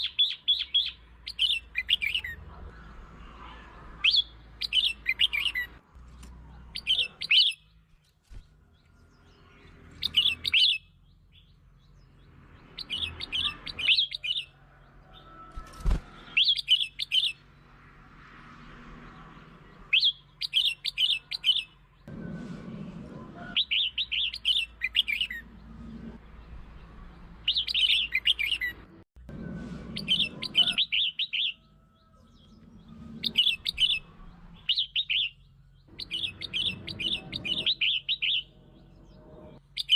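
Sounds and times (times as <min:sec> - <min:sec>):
bulbul singing: 0:00.0 - 0:02.4, 0:04.0 - 0:14.6, 0:15.2 - 0:17.7, 0:19.2 - 0:22.1, 0:23.5 - 0:28.8, 0:29.8 - 0:39.9.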